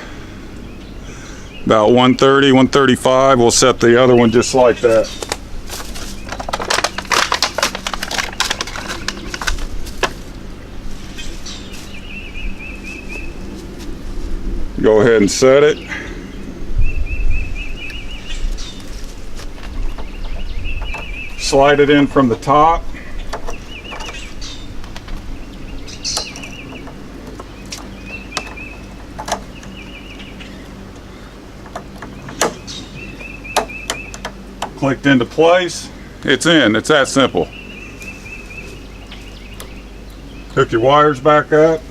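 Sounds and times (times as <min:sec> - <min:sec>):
small bird chirping: 0:11.0 - 0:13.6, 0:15.7 - 0:19.0, 0:19.6 - 0:22.3, 0:22.9 - 0:34.9, 0:37.2 - 0:41.0.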